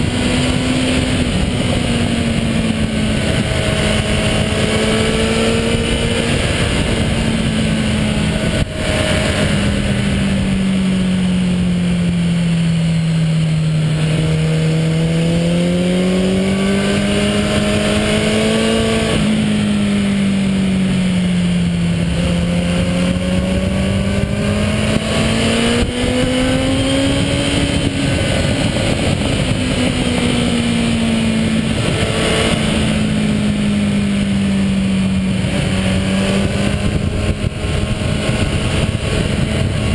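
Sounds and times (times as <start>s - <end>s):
motorcycle engine running: 0.0s - 39.9s
road noise: 0.0s - 39.9s
wind noise: 0.0s - 39.9s.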